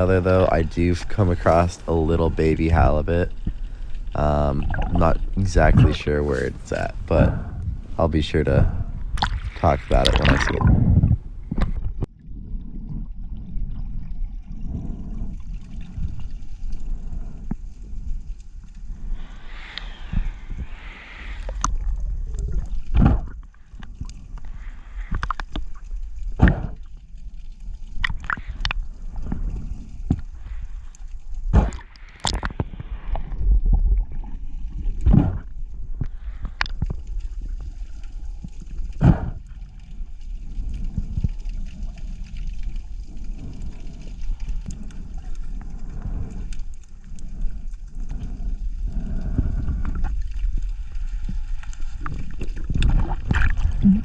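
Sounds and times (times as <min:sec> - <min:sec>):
underwater rumble: 0:00.0 - 0:54.0.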